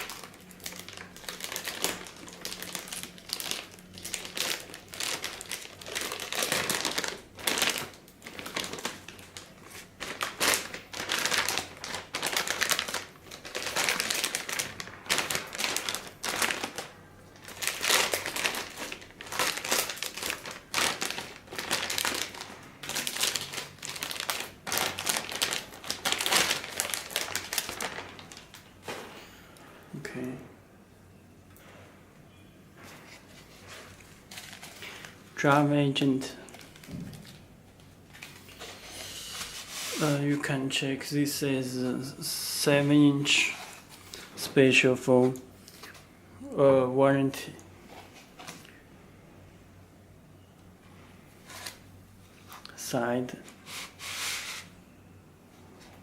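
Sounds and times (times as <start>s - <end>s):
packaging crinkling and rustling: 0.0s - 29.1s, 32.9s - 40.8s, 43.2s - 46.1s, 51.4s - 52.8s.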